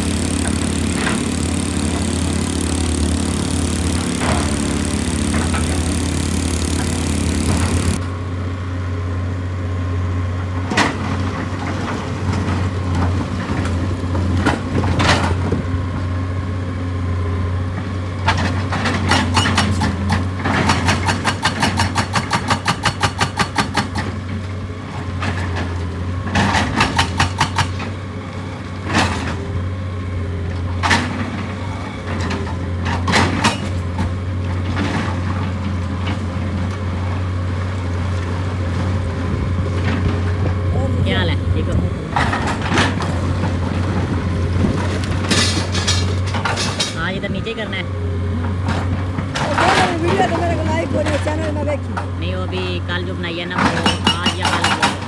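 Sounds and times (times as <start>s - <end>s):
rapid hammer blows: 0.0s - 8.0s
excavator diesel engine running: 0.0s - 55.0s.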